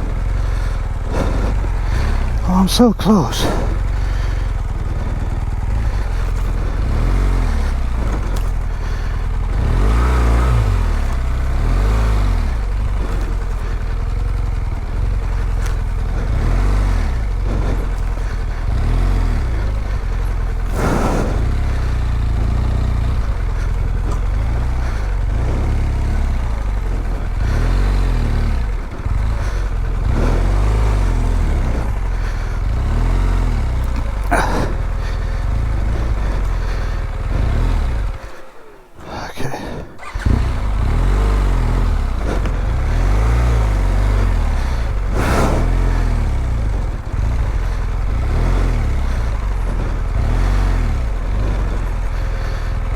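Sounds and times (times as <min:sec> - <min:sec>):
motorcycle engine revving: 0:00.0 - 0:02.5, 0:03.4 - 0:39.0, 0:40.0 - 0:52.9.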